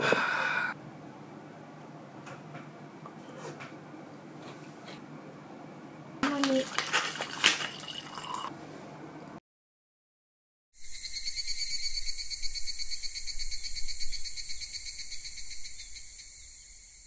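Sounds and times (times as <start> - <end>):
crickets chirping: 10.8 - 17.0.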